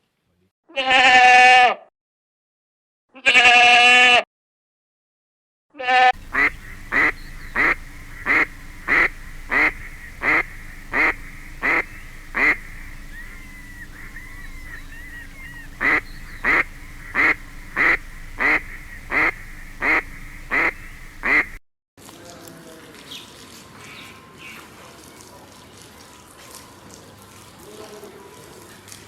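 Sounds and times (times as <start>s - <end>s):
bird giving short calls: 6.2s - 21.6s
faint chirps of other birds: 6.2s - 21.6s.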